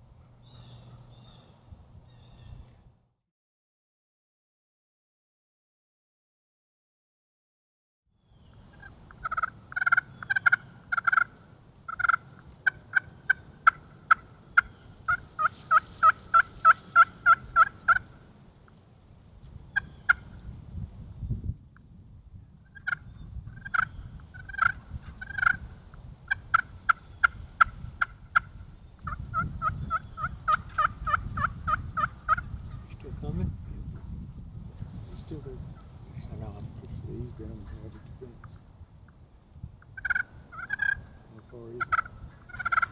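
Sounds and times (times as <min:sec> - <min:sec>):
turkey yelping: 0:08.7 - 0:18.2, 0:19.8 - 0:20.4, 0:22.8 - 0:25.7, 0:26.3 - 0:32.9, 0:40.0 - 0:41.2, 0:41.8 - 0:42.9.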